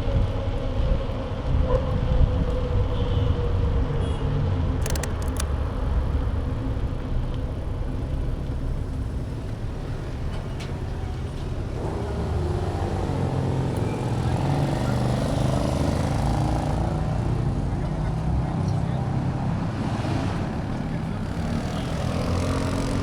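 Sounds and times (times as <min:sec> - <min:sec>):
wind and road rumble: 0:00.0 - 0:23.0
sharp clicks: 0:04.8 - 0:05.6.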